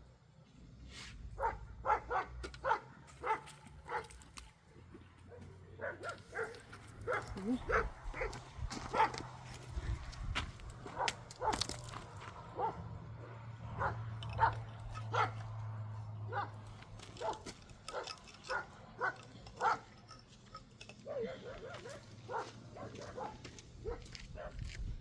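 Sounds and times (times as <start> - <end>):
dog barking and yipping: 1.4 - 4.2, 5.3 - 9.4, 10.8 - 11.8, 12.4 - 20.0, 21.0 - 24.6.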